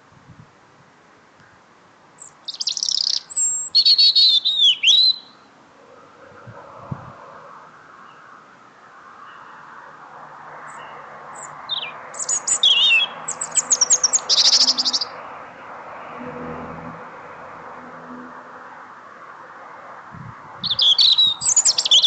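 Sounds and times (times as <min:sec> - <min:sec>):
small songbird singing: 0:02.2 - 0:05.5, 0:10.6 - 0:15.2, 0:20.6 - 0:22.0.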